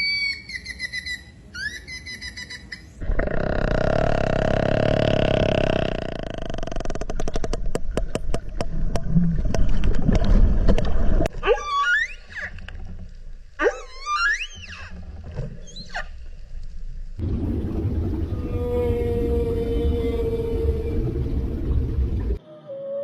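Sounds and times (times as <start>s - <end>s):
whale clicks: 5.1s - 16.8s
whale rising whistles: 17.8s - 21.9s.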